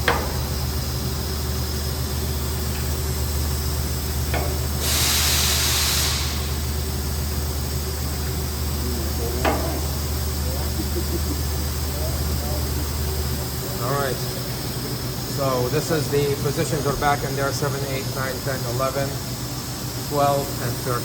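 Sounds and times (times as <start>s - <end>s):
shop machinery humming: 0.0s - 21.0s
compressed air blast: 4.5s - 6.9s.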